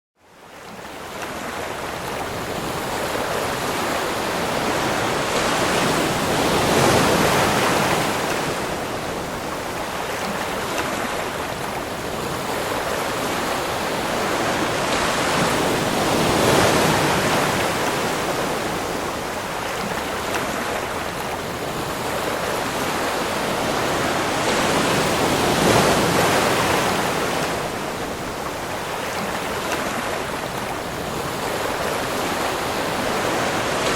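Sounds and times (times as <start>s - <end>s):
ocean waves: 0.2s - 33.9s.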